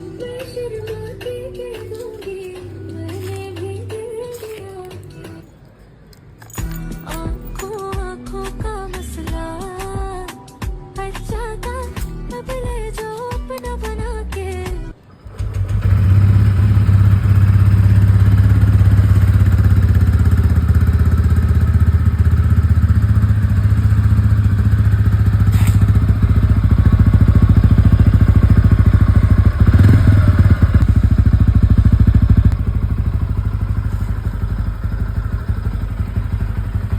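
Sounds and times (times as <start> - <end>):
motorcycle engine running: 15.3 - 36.9.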